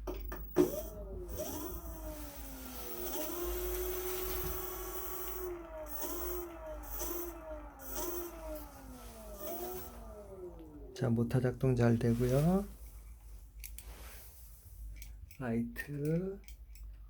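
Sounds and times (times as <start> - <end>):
electric scooter motor whining: 0.4 - 11.2.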